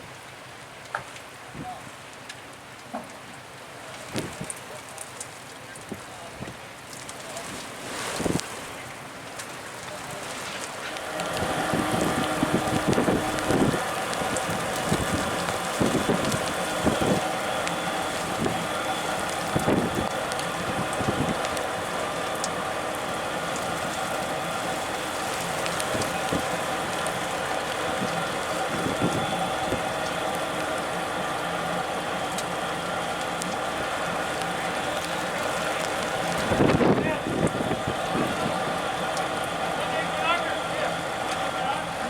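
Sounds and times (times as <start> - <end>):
motor running: 10.8 - 42.0.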